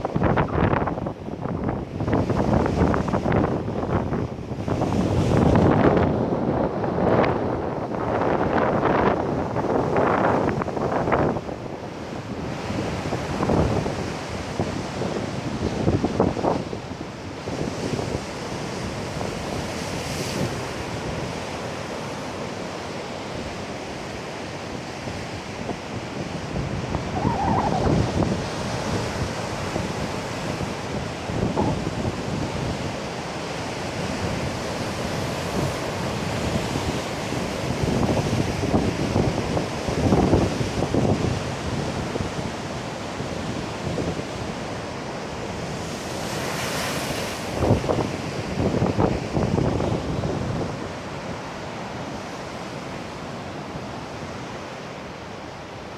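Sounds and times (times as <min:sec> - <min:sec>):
wind buffeting microphone: 0:00.0 - 0:21.4, 0:25.6 - 0:44.8, 0:47.4 - 0:51.4
heavy surf breaking on beach: 0:00.0 - 0:55.9.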